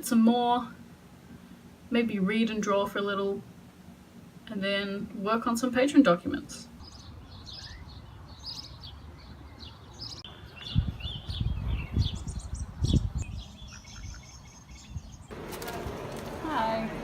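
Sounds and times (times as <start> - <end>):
small birds chirping: 6.4 - 16.2.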